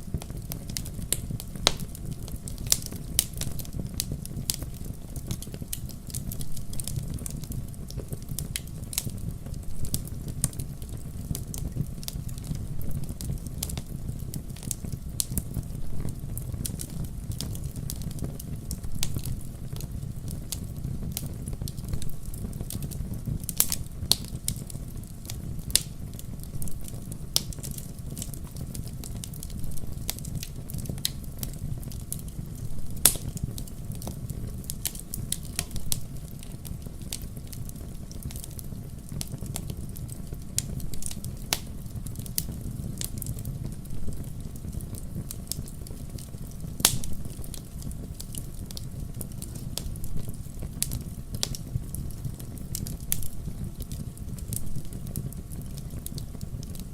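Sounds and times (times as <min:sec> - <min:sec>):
logs crackling and popping: 0:00.0 - 0:56.9
low rumble of flames: 0:00.0 - 0:56.9.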